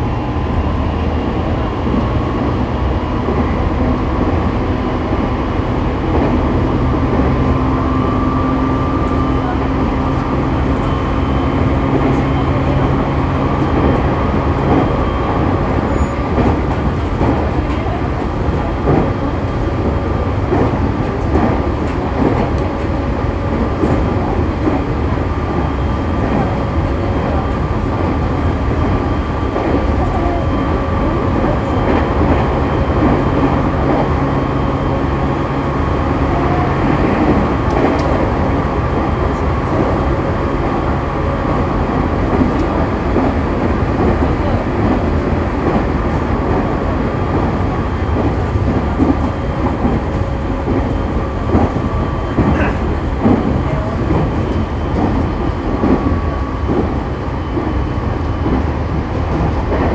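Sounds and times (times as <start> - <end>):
rail-joint clicks: 9.0 - 19.6, 37.0 - 40.7.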